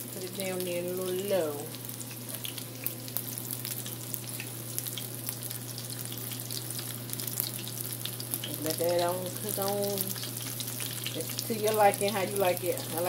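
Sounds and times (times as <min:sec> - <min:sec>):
shrimp frying in oil: 0:00.0 - 0:13.0.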